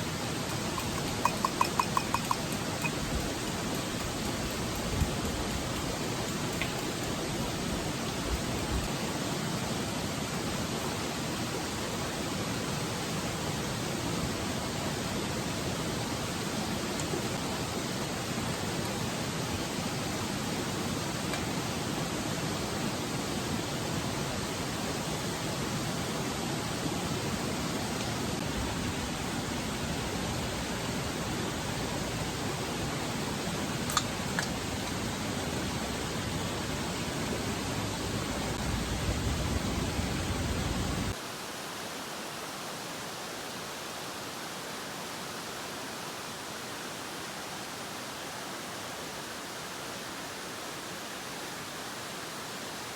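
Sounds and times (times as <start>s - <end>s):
thin hiss: 0.0s - 9.0s
faint ticks: 0.5s - 7.2s.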